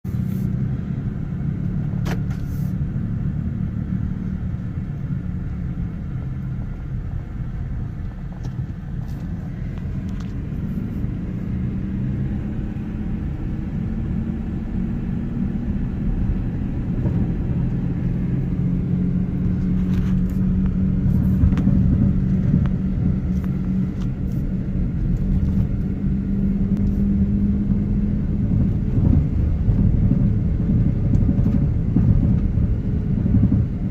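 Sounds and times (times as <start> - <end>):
motor vehicle engine rumbling: 0.0 - 33.9.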